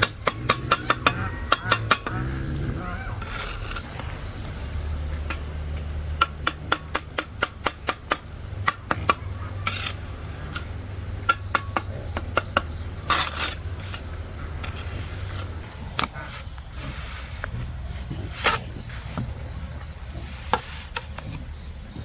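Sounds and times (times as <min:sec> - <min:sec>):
sharp knocks: 0:00.0 - 0:09.9
steady low hum: 0:00.0 - 0:22.0
short scraping noises: 0:13.1 - 0:21.5.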